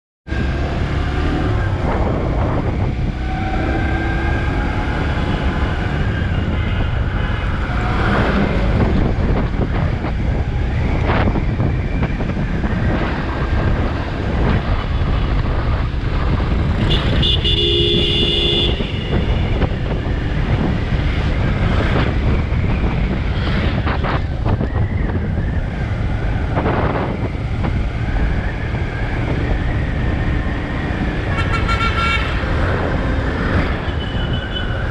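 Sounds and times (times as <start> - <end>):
highway traffic noise: 0.2 - 34.9
bus engine and tyres: 0.3 - 34.9
wind on microphone: 0.3 - 34.9
vehicle horn: 16.8 - 19.5, 31.3 - 32.4.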